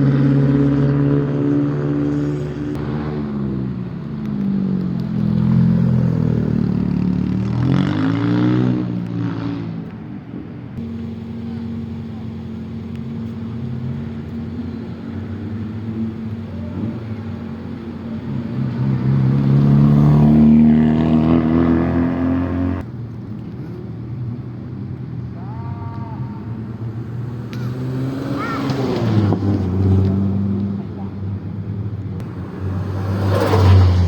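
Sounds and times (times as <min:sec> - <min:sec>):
car engines revving: 0:00.0 - 0:34.0.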